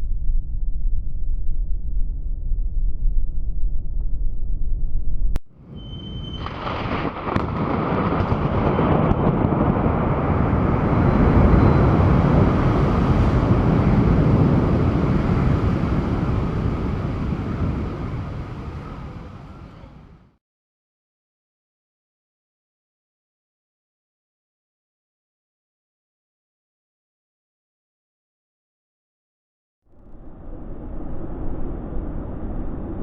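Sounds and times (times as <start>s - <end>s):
thunder rolling rumble: 0.0s - 20.3s, 29.9s - 33.0s
thunder crack: 5.6s - 20.3s.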